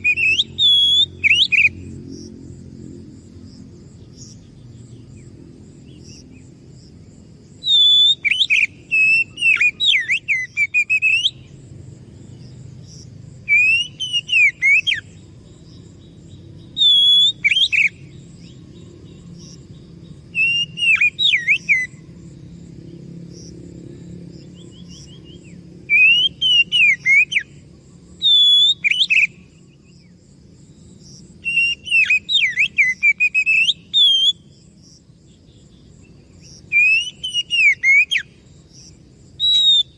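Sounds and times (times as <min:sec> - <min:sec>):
bird singing whistled phrases: 0:00.0 - 0:01.8, 0:07.6 - 0:11.5, 0:13.5 - 0:15.1, 0:16.7 - 0:18.6, 0:20.3 - 0:22.0, 0:24.8 - 0:27.6, 0:28.2 - 0:29.6, 0:31.4 - 0:34.5, 0:36.7 - 0:38.3, 0:39.4 - 0:39.9
insect trill: 0:00.0 - 0:39.9.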